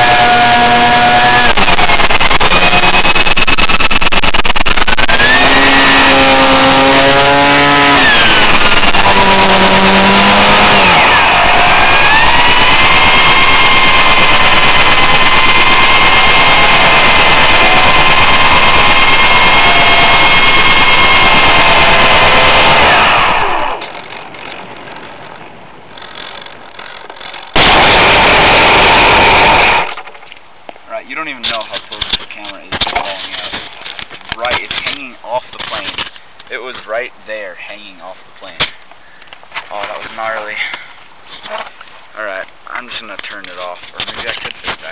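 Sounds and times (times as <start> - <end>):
electric motor and propeller whine: 0.0 - 24.3, 26.0 - 30.2.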